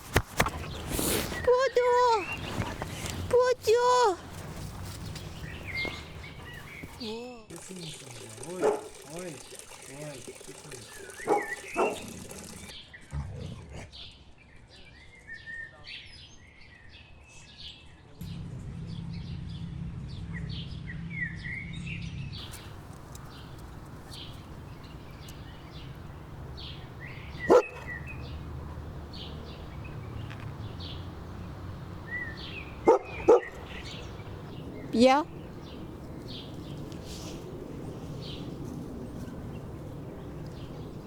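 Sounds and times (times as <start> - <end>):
small birds chirping: 0.0 - 12.7, 22.4 - 41.0
dog barking: 8.5 - 9.1, 11.2 - 12.7, 22.4 - 34.6.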